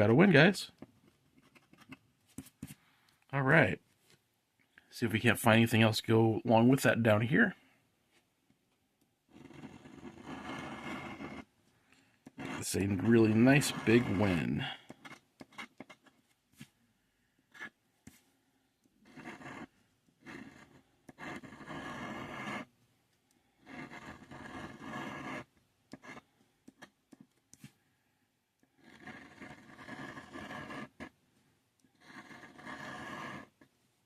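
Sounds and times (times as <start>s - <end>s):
lottery ticket being scratched: 9.4s - 11.4s, 12.3s - 16.1s, 19.1s - 19.7s, 20.3s - 22.7s, 23.7s - 26.2s.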